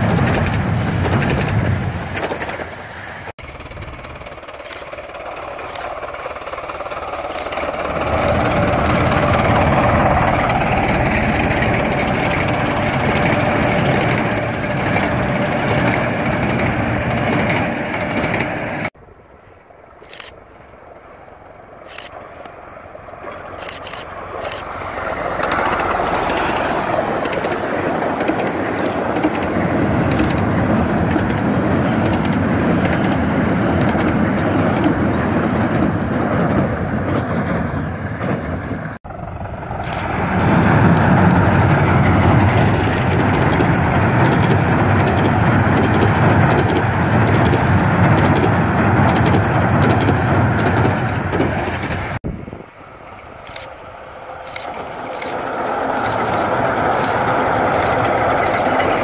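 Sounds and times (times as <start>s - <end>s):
train rumbling past: 0.0s - 59.0s.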